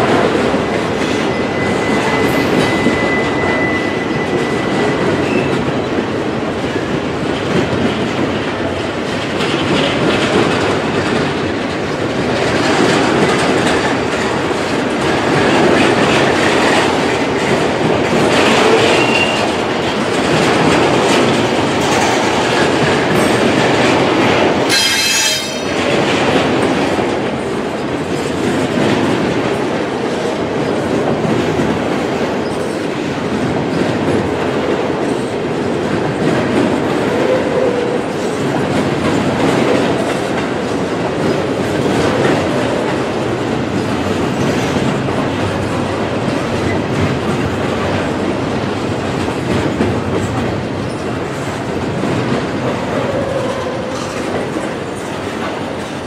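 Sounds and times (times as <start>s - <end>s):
train wheels clattering over rails: 0.0s - 56.0s
high-pitched wheel squeal: 1.3s - 5.5s.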